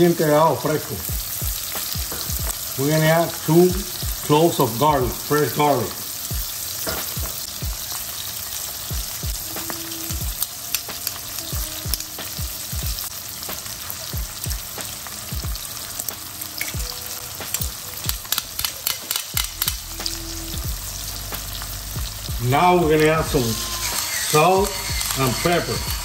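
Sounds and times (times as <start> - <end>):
food sizzling in a pan: 0.0 - 26.0.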